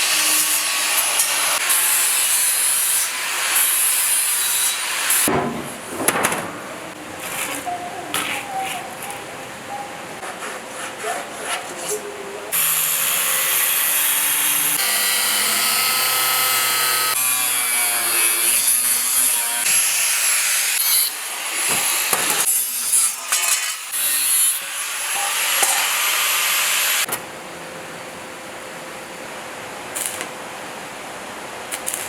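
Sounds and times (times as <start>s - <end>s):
power saw cutting: 0.0s - 5.3s, 12.5s - 27.1s.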